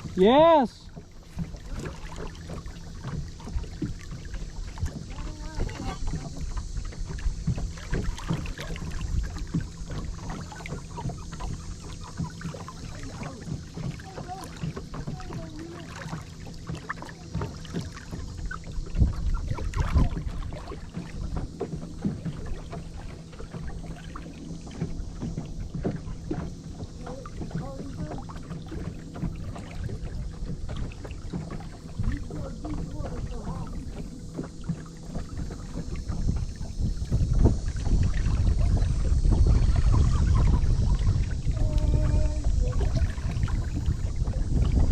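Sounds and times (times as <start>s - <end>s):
low rumble: 23.4s - 44.9s.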